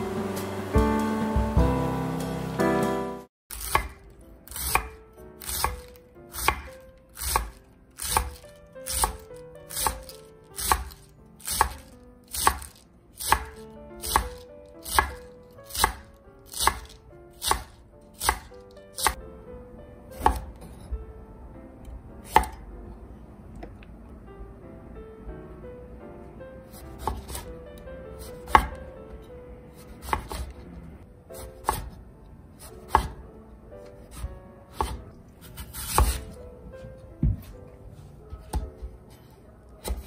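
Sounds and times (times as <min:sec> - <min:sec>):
knife chopping on wooden board: 0:03.5 - 0:19.2, 0:20.2 - 0:20.5, 0:22.3 - 0:22.6, 0:27.0 - 0:27.5, 0:28.4 - 0:28.8, 0:29.8 - 0:30.5, 0:31.4 - 0:32.0, 0:32.6 - 0:33.2, 0:34.1 - 0:36.4, 0:38.3 - 0:39.0, 0:39.8 - 0:40.0.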